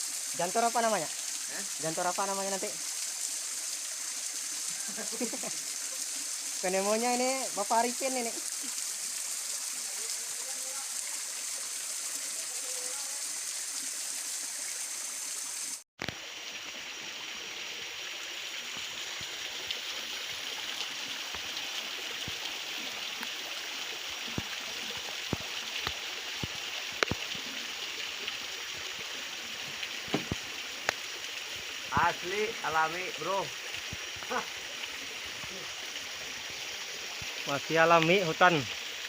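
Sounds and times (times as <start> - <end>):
waterfall rushing: 20.0 - 39.0
sharp clicks and taps: 25.3 - 27.2.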